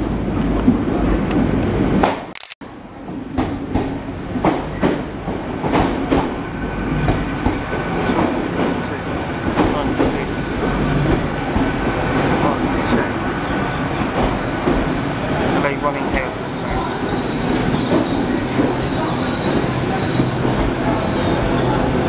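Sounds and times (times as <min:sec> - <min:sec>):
train running rumble: 0:00.0 - 0:22.0
train wheels clicking: 0:03.4 - 0:06.4, 0:17.0 - 0:21.3.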